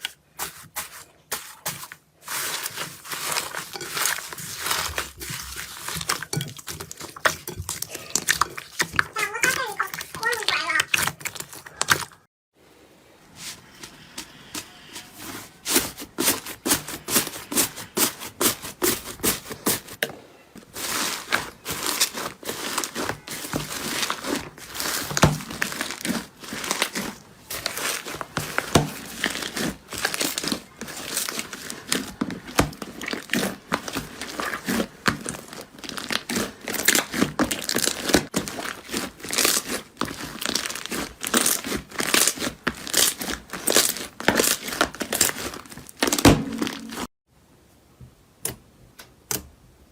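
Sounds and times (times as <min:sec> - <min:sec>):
slime crackling and popping: 0:20.8 - 0:47.0.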